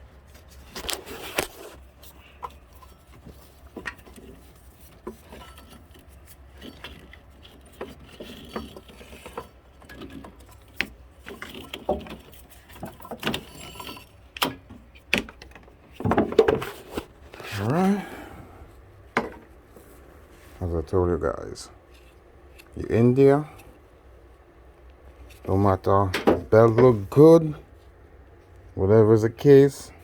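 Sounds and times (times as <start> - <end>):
steady low hum: 0.0 - 30.0
hand tools clinking: 5.1 - 14.5.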